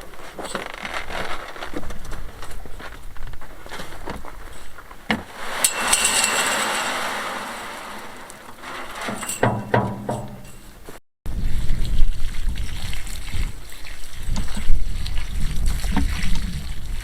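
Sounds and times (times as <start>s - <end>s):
rushing clatter: 5.2s - 10.7s
hand tools knocking: 8.6s - 10.8s.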